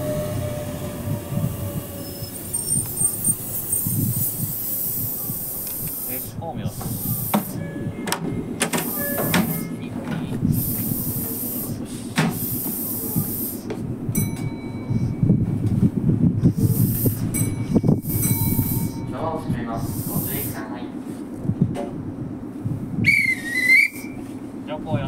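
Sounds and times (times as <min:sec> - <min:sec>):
pneumatic doors sliding with air hiss: 0:00.0 - 0:09.8, 0:10.4 - 0:13.8, 0:16.4 - 0:19.0, 0:19.8 - 0:20.6
train equipment rumbling: 0:00.0 - 0:25.0.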